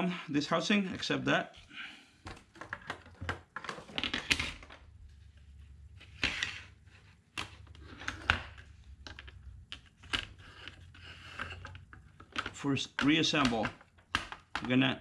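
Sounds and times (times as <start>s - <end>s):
hard plastic clicks and rattles: 7.4s - 14.8s.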